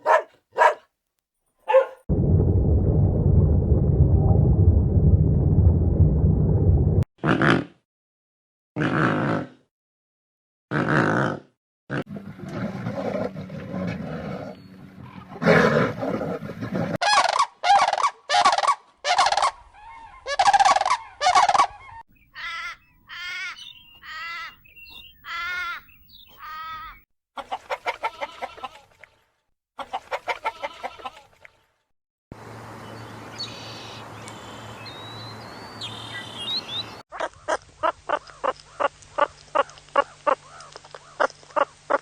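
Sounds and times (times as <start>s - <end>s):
poultry calling: 0.0s - 0.8s, 1.7s - 2.0s, 19.4s - 28.8s, 29.8s - 31.3s
wavering poultry calls: 17.0s - 28.9s, 29.8s - 31.4s
hens clucking rapidly: 27.4s - 28.9s, 29.8s - 31.3s.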